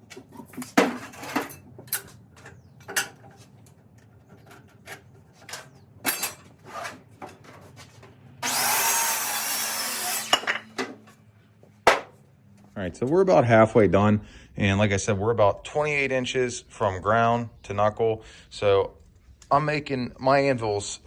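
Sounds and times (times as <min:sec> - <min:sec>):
power tool cutting wood: 0:08.4 - 0:11.0
wooden planks clunking: 0:11.8 - 0:12.2.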